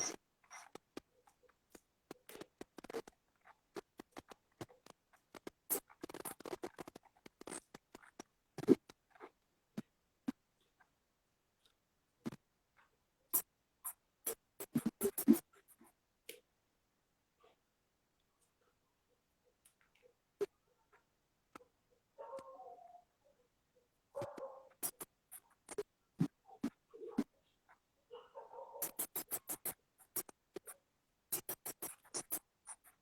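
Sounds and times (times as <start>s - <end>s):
scratchy rustles: 2.1s - 9.3s.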